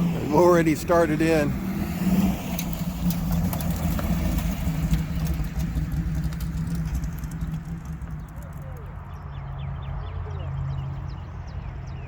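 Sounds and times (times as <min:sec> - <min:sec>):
engine idling: 0:02.5 - 0:09.6.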